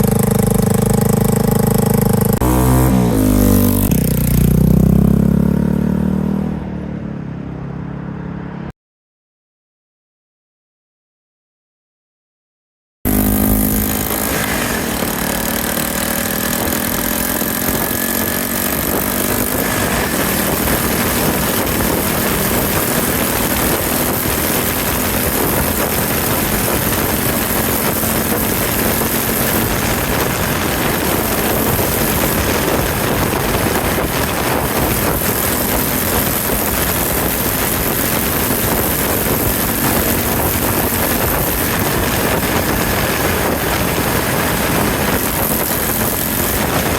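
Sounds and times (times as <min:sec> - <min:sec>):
motorcycle engine accelerating: 0:00.0 - 0:08.7, 0:13.1 - 0:46.9
wind noise: 0:13.5 - 0:46.9.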